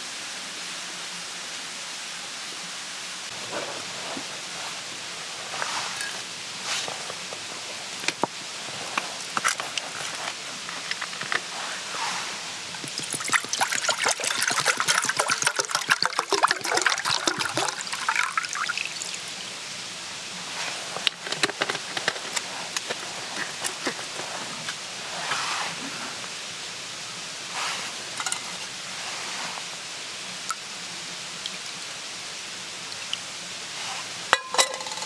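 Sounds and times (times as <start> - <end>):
soft rustles: 3.3 - 12.9, 20.4 - 26.4, 27.5 - 29.8
liquid pouring: 3.3 - 19.4, 20.5 - 25.0, 27.8 - 28.7.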